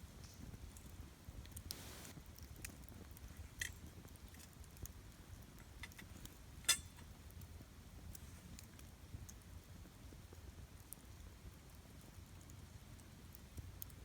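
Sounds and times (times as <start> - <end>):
campfire crackling and popping: 0.4 - 14.0
soft hiss: 1.6 - 2.3.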